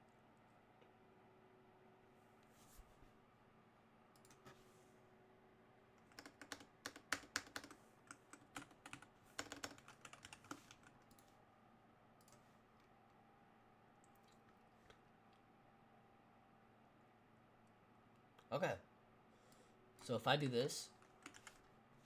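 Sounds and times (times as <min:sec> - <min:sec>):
computer keyboard typing: 0:06.0 - 0:11.3, 0:21.0 - 0:21.7.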